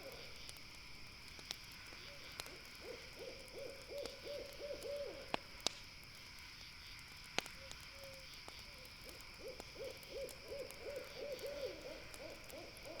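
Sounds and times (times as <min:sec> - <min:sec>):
campfire crackling: 0:00.0 - 0:13.0
insect chorus: 0:00.0 - 0:13.0
owl hooting: 0:02.8 - 0:05.2, 0:09.4 - 0:13.0.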